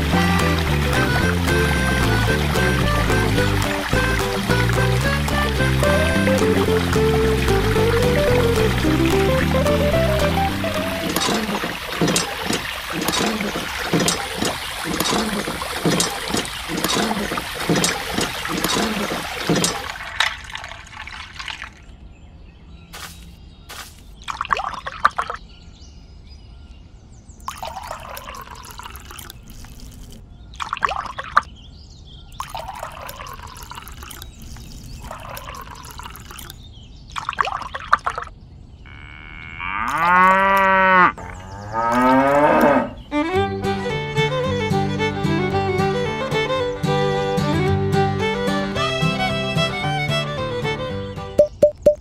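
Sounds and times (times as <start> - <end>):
water splashing onto wet sand: 0.0 - 21.9, 23.0 - 25.4, 27.4 - 31.5, 32.4 - 38.3
cow mooing: 38.9 - 43.0.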